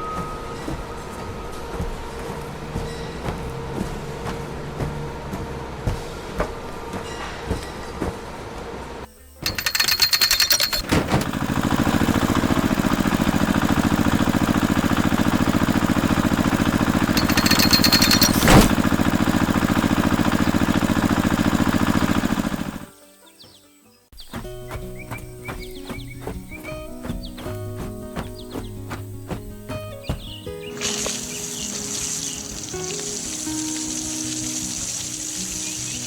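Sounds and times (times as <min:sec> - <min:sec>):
harsh clattering bursts: 0:09.4 - 0:22.9, 0:30.8 - 0:36.0
machine rattling: 0:09.4 - 0:22.9, 0:30.8 - 0:36.0.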